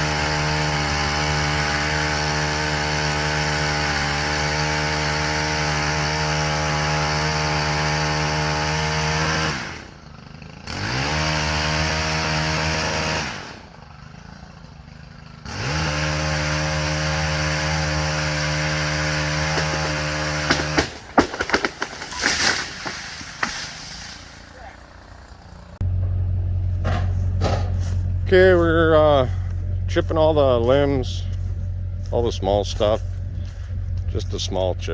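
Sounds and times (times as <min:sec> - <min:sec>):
sharp cracks and knocks: 0:00.0 - 0:06.3, 0:18.6 - 0:24.1, 0:26.8 - 0:28.0
chainsaw revving: 0:00.0 - 0:25.8, 0:28.2 - 0:34.9.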